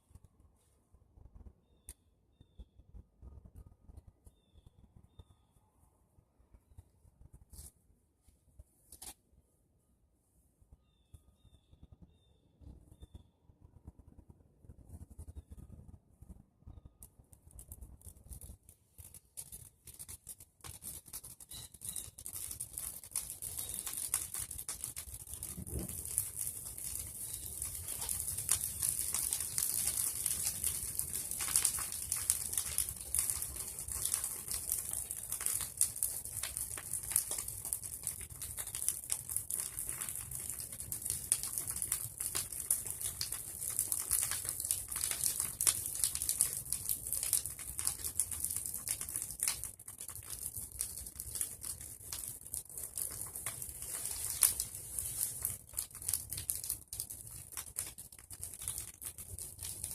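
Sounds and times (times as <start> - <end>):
bonfire crackling and popping: 16.9 - 59.9
fire hissing: 22.3 - 37.7.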